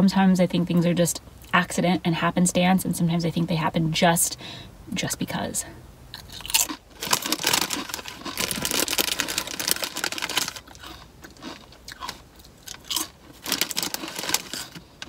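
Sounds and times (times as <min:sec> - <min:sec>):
chewing crunchy chips: 0:06.1 - 0:15.0
foil bag crinkling: 0:06.5 - 0:15.0.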